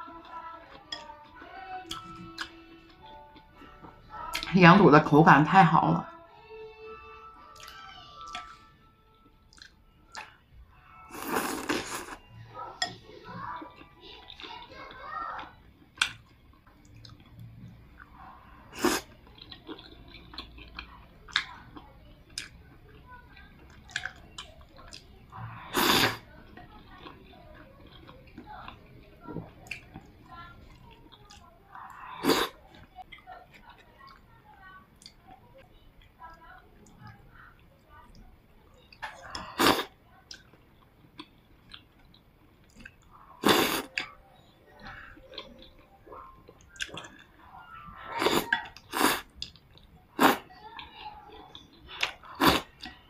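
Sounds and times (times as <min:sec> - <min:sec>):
person chewing: 0:00.0 - 0:04.5, 0:06.7 - 0:34.2, 0:38.9 - 0:53.0
wet mouth clicks: 0:09.5 - 0:10.4
slurp of soup: 0:18.7 - 0:19.1, 0:25.6 - 0:26.2, 0:32.2 - 0:32.6, 0:39.4 - 0:39.9, 0:43.4 - 0:43.9, 0:48.2 - 0:49.3.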